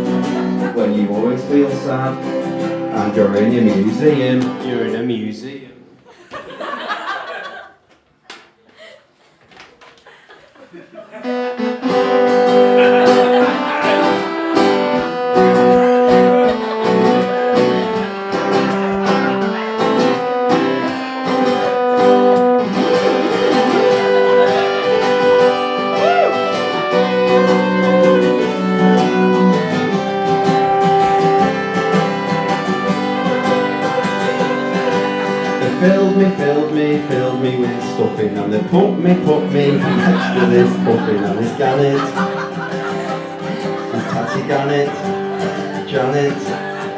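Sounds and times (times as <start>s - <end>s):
strummed acoustic guitar: 0.0s - 5.1s, 11.2s - 46.9s
melody line: 11.3s - 36.1s, 38.8s - 41.3s.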